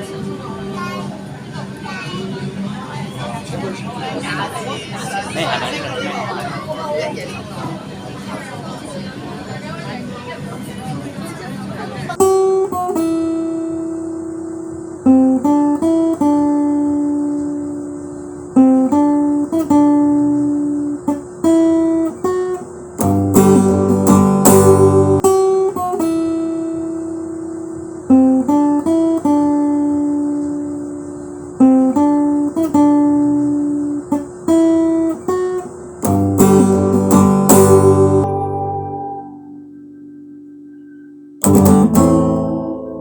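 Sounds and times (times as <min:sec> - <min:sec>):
guitar picking and strumming: 0:12.2 - 0:43.0.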